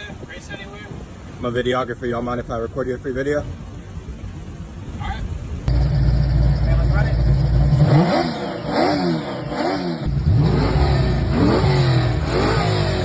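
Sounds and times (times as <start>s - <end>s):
car engine revving: 5.7s - 13.0s.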